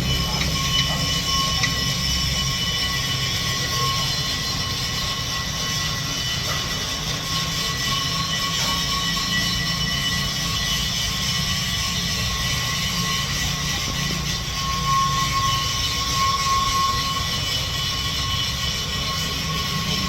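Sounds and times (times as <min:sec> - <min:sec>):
machinery low rumble: 0:00.0 - 0:04.8
machinery high whine and hiss: 0:00.0 - 0:20.0.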